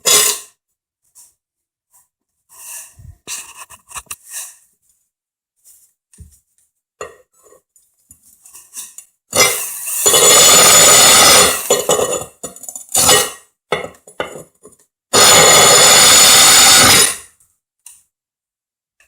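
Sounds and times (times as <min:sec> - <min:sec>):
power drill cutting tile: 0:09.4 - 0:12.3, 0:15.2 - 0:17.3.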